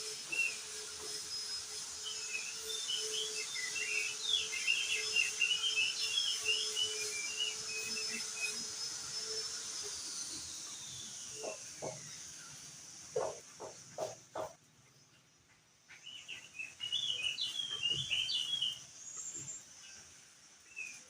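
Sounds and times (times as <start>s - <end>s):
bird singing chirping notes: 16.0s - 18.9s.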